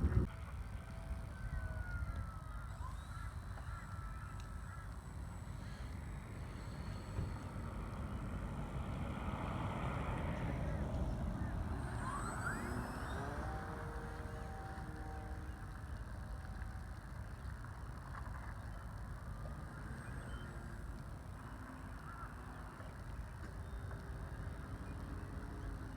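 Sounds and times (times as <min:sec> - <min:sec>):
wind rumble on microphone: 0:00.0 - 0:02.6
model plane motor whine: 0:00.0 - 0:25.9.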